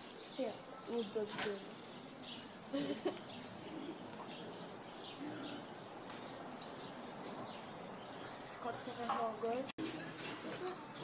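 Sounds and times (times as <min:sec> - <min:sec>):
birds chirping faintly: 0:00.0 - 0:11.0
short low bird calls: 0:02.2 - 0:05.9.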